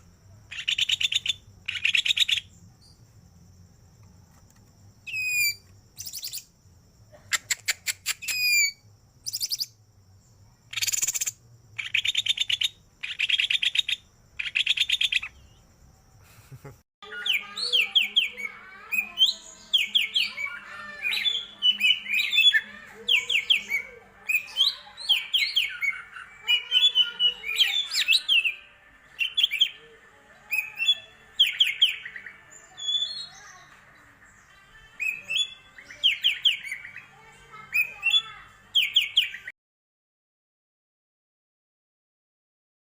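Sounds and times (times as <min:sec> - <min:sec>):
bird chattering and whistling: 0:05.1 - 0:06.4, 0:07.3 - 0:09.7, 0:10.7 - 0:15.4.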